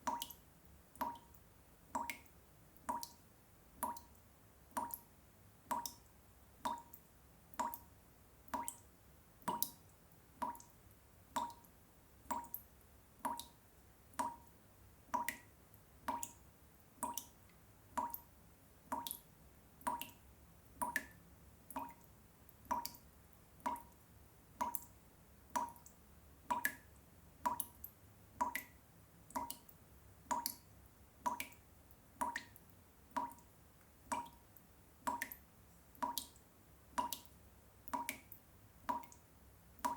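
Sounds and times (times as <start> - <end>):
water dripping into water: 0.0 - 39.9.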